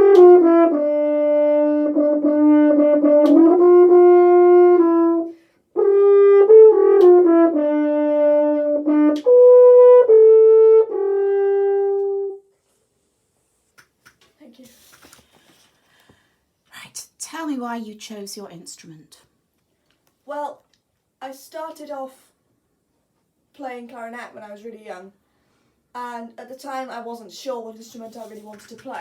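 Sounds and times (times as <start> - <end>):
french horn playing: 0.0 - 12.5
player breathing: 15.1 - 16.5.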